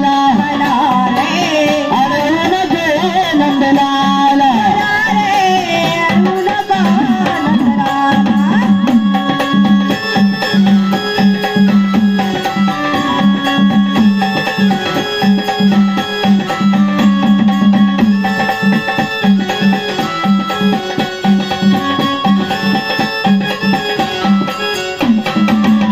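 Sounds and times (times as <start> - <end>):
hand drums: 0.0 - 25.9
melodic instrument: 7.6 - 25.9.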